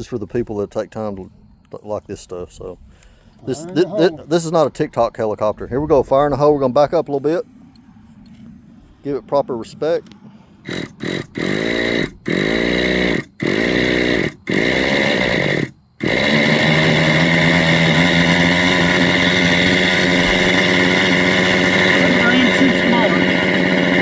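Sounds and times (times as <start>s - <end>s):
model engine cranking: 10.6s - 24.0s
model helicopter engine running: 10.6s - 24.0s.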